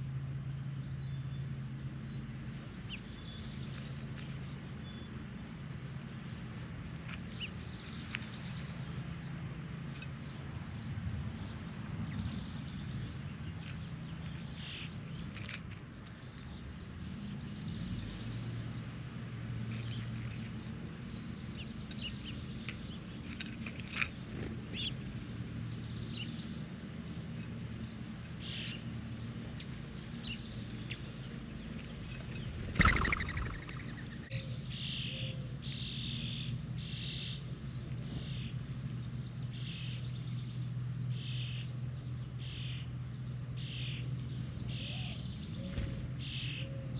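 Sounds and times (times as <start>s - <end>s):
birds chirping: 0.6s - 19.0s, 19.7s - 46.9s.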